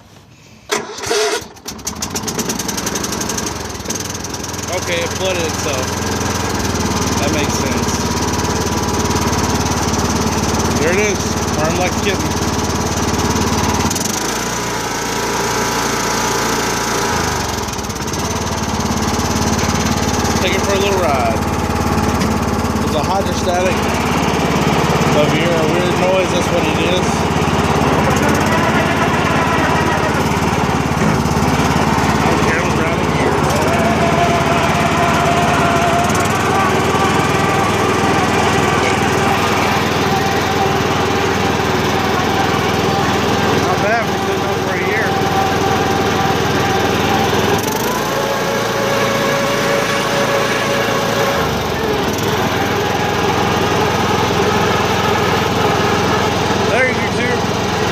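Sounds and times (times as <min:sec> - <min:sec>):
lawn tractor engine purring: 0:00.0 - 0:57.9
steady whine: 0:19.5 - 0:54.0.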